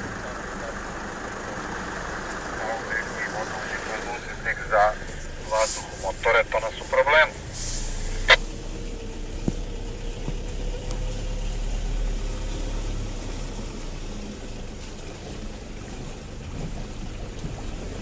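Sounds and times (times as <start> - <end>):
diesel engine running: 0.0 - 18.0
water washing around truck: 0.0 - 18.0.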